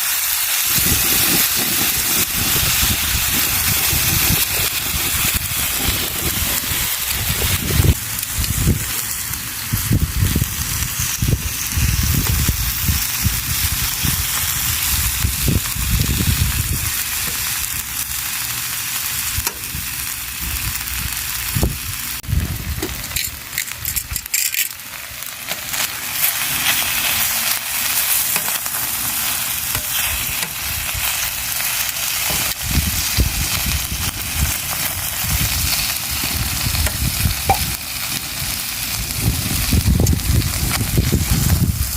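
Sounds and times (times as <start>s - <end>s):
meat sizzling on a grill: 0.0s - 41.9s
wood fire crackling and popping: 0.0s - 41.9s
low rumbling: 0.7s - 18.2s, 19.2s - 24.3s.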